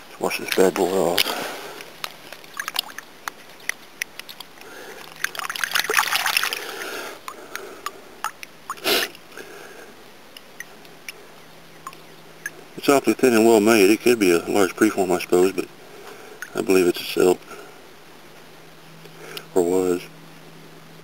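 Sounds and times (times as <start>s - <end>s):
water splashing and trickling: 0.2s - 9.2s
small clicks: 2.0s - 5.4s.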